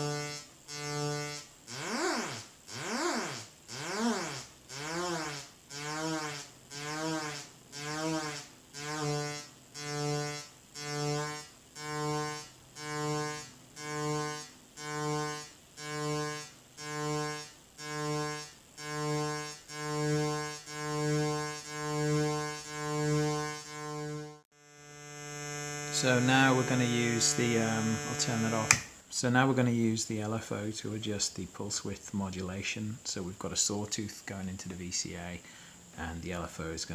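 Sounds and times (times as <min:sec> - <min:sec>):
pulsing buzzy synthesizer tone: 0:00.0 - 0:28.7.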